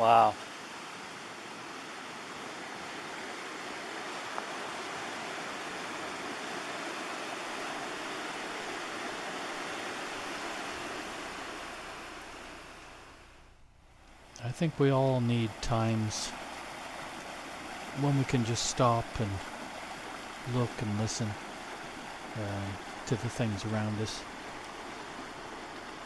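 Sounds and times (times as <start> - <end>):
river rapids rushing: 0.0 - 13.1.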